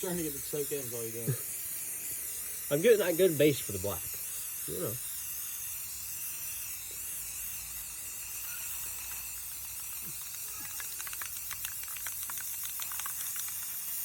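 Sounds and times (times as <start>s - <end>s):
spray paint can hissing: 0.0s - 14.0s
mixing ball rattling in can: 8.8s - 14.0s.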